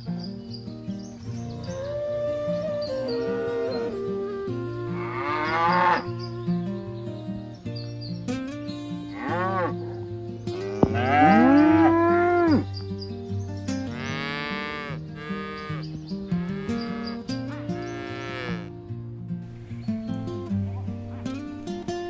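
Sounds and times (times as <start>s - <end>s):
background music: 1.6s - 8.1s, 8.7s - 12.8s
cows mooing: 3.0s - 3.9s, 4.7s - 6.2s, 9.1s - 12.8s, 13.9s - 18.7s.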